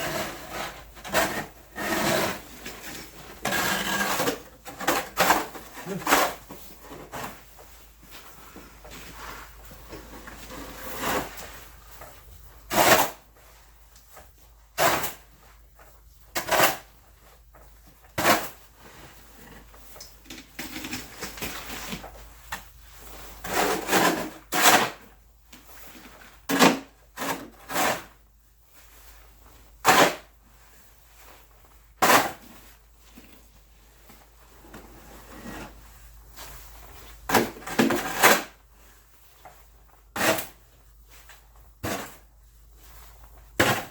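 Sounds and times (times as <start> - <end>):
snow shovel scraping and knocking: 0.0 - 11.7, 23.4 - 25.1, 34.6 - 35.8, 37.2 - 38.6, 41.8 - 42.3.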